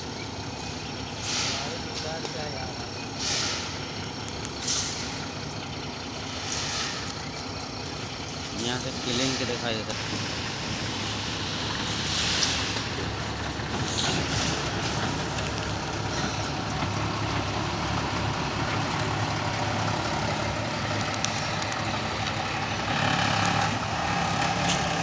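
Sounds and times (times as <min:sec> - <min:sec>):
heavy vehicle engine running: 0:00.0 - 0:25.0
air hissing: 0:01.2 - 0:02.1, 0:03.1 - 0:05.4, 0:06.3 - 0:07.3, 0:09.0 - 0:13.2.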